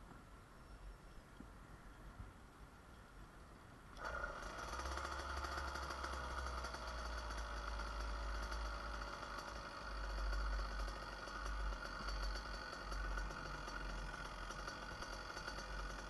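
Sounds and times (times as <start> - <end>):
two-stroke engine running: 4.0 - 16.0.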